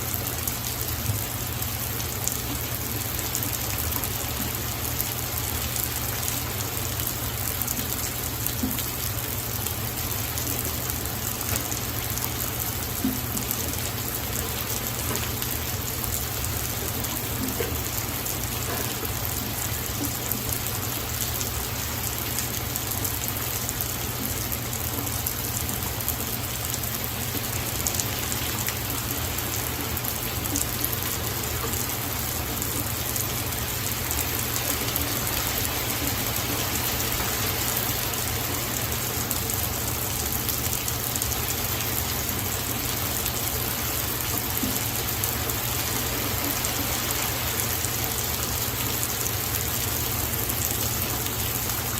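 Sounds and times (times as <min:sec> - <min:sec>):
rain pattering on surfaces: 0:00.0 - 0:51.9.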